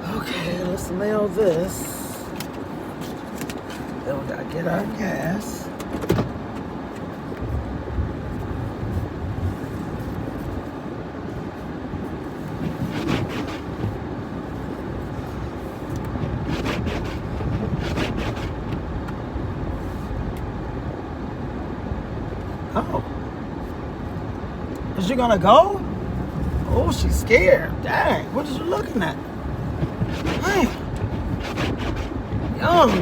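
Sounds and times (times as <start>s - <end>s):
truck engine rumble: 6.3s - 33.0s
knocks or scrapes: 29.6s - 33.0s.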